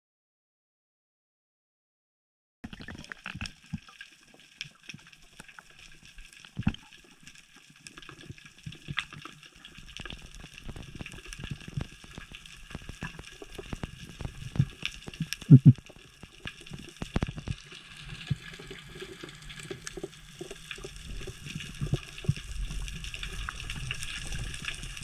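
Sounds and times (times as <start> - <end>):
underwater water movement: 2.6 - 25.0
crackling clicks: 3.0 - 25.0
underwater knock: 15.5 - 15.8.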